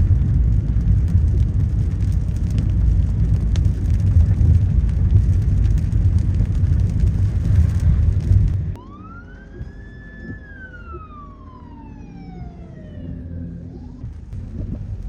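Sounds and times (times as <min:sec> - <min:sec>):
loud low rumbling: 0:00.0 - 0:15.0
emergency vehicle siren wailing: 0:08.7 - 0:14.3.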